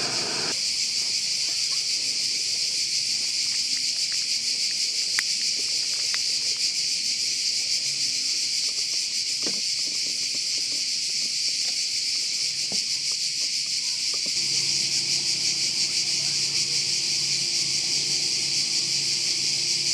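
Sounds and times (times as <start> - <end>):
insects buzzing shrilly: 0.0 - 0.6, 14.4 - 19.9.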